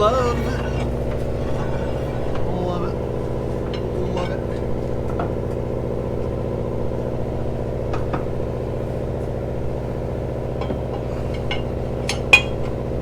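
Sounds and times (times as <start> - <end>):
metal tools clinking: 0.0 - 5.2, 10.6 - 12.8
engine running: 0.0 - 13.0.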